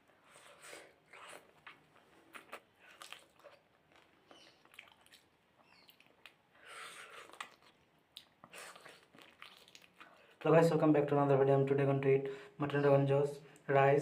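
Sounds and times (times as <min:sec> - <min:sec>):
mouth chewing and smacking: 0:00.1 - 0:10.5.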